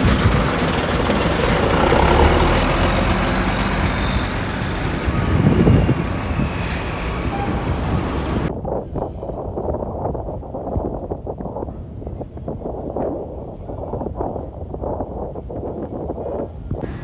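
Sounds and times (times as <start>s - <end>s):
diesel buses moving past: 0.0s - 8.5s
wind on microphone: 0.0s - 17.0s.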